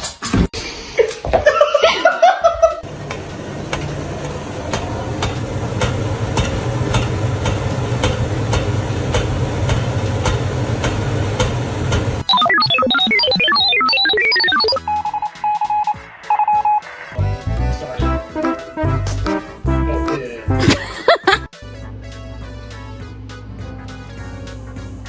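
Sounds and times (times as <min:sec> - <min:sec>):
person laughing: 0:01.0 - 0:02.8, 0:20.5 - 0:21.5.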